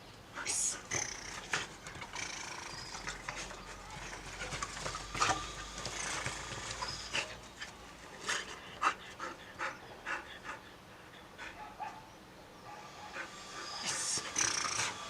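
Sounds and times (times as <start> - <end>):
dog panting: 0.4 - 12.0, 13.0 - 15.0
scuffling and knocks: 2.9 - 7.8.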